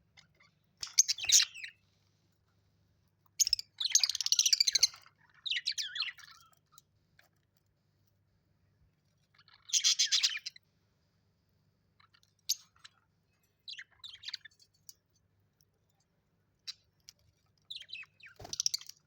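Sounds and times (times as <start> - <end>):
parrot chattering and chirping: 9.3 - 10.6.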